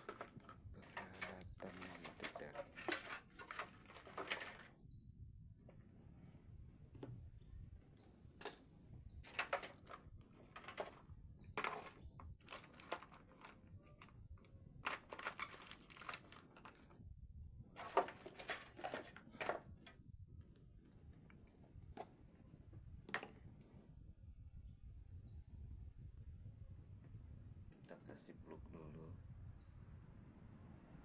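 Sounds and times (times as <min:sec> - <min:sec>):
crinkling and tearing: 0:00.0 - 0:04.7, 0:09.3 - 0:11.0, 0:11.6 - 0:14.2, 0:14.8 - 0:17.0, 0:17.8 - 0:21.4.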